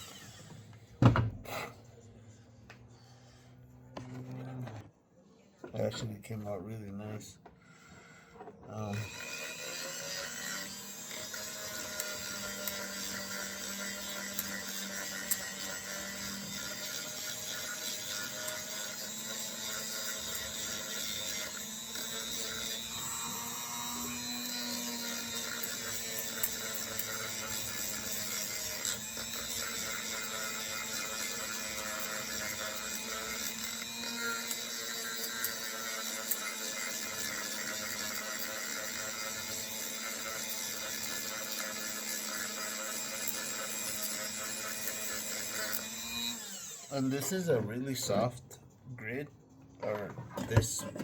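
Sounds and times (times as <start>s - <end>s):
rotary tool sanding: 9.0s - 48.2s.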